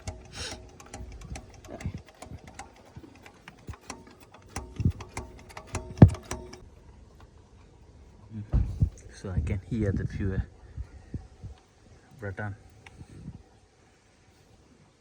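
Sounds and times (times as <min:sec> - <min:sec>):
hand pump clicking and knocking: 0:00.0 - 0:06.6.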